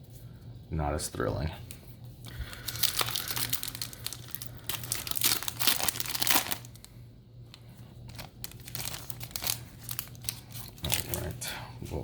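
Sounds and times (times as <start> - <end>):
foil wrapper crinkling and tearing: 2.2 - 7.0, 8.1 - 11.4.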